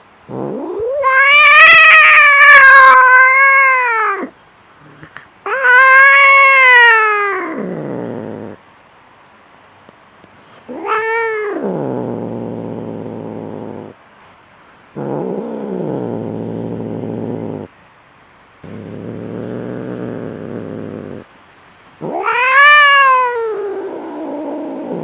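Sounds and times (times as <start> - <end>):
cats yowling in a fight: 0.3 - 4.3, 5.4 - 8.6, 10.7 - 13.9, 22.0 - 25.0.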